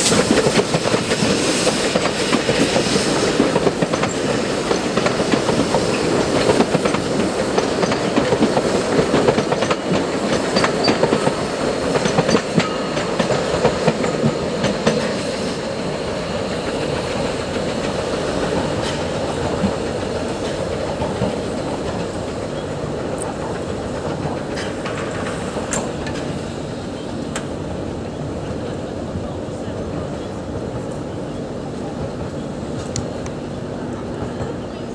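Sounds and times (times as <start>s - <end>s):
steam train running: 0.0s - 34.9s
wheels clicking over rail joints: 0.1s - 15.2s, 16.7s - 26.4s.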